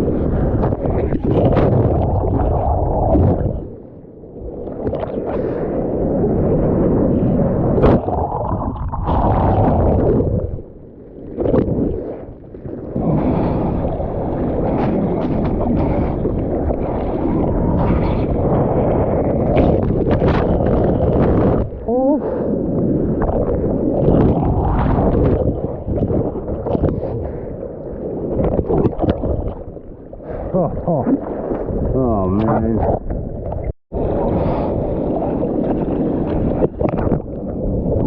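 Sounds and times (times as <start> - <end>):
water sloshing in surf: 0.0 - 38.0
wind buffeting microphone: 0.0 - 38.0.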